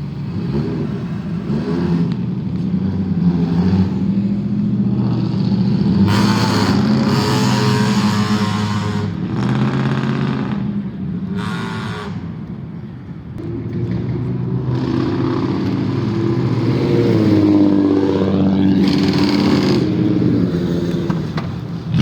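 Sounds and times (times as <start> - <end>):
car engine revving: 0.0 - 11.9, 13.4 - 22.0
car engines running: 0.0 - 22.0.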